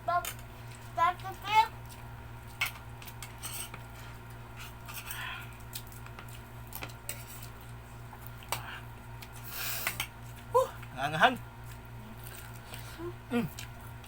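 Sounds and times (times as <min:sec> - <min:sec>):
low steady hum: 0:00.0 - 0:14.0
dishes and cutlery clinking: 0:02.6 - 0:03.9
soft eating smears: 0:11.6 - 0:14.0.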